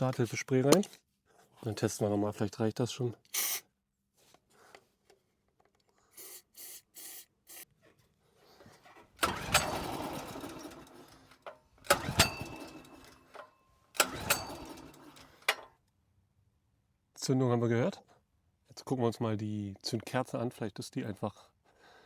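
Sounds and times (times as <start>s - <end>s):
generator recoil starter cranking: 8.9s - 15.7s.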